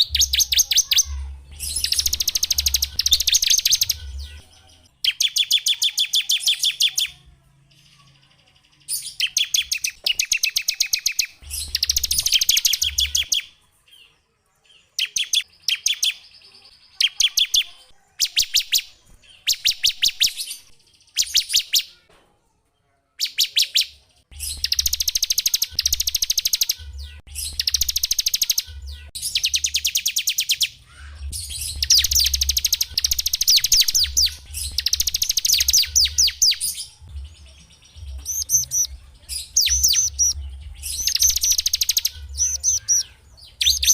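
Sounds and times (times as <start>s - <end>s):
songbird singing fast trills: 0.0s - 4.4s, 8.9s - 13.5s, 23.2s - 30.8s, 31.4s - 43.9s.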